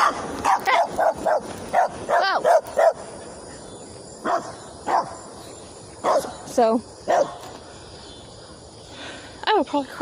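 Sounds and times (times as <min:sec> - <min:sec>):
dog barking: 0:00.0 - 0:03.0, 0:04.2 - 0:05.2, 0:06.0 - 0:06.3, 0:07.1 - 0:07.4.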